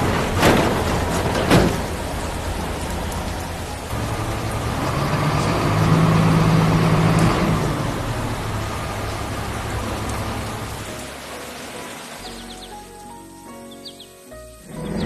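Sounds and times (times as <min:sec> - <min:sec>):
vehicle engine running: 0:00.0 - 0:11.3
rushing water hiss: 0:00.0 - 0:15.0.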